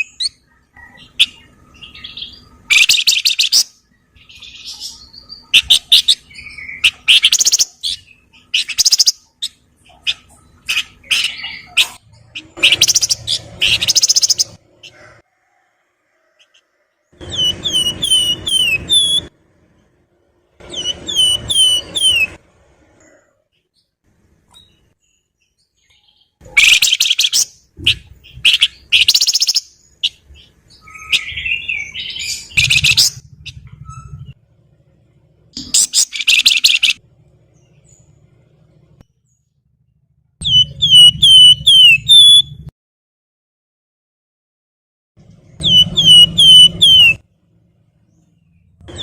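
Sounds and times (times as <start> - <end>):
songbird whistling descending notes: 17.2 - 19.3, 20.7 - 22.4, 40.4 - 42.6, 45.6 - 47.2.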